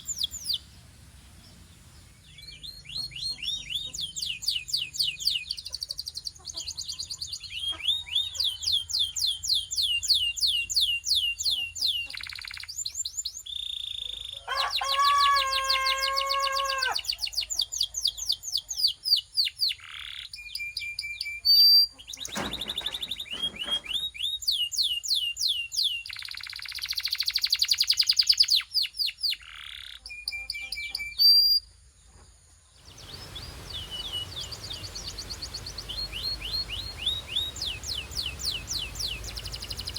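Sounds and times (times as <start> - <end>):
canary singing trills: 0.0 - 31.7, 32.8 - 39.9.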